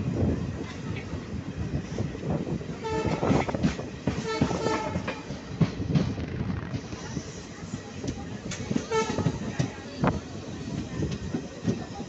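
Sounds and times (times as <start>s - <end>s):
train wheels rumbling on track: 0.0s - 12.0s
train horn: 2.8s - 3.4s, 4.2s - 5.1s, 8.9s - 9.4s.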